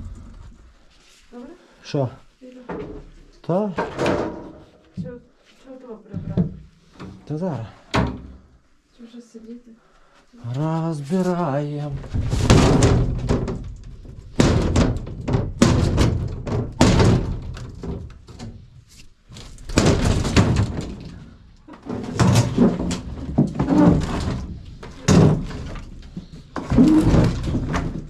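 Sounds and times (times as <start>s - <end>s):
heavy thuds and knocks: 12.0s - 18.7s, 19.3s - 28.0s.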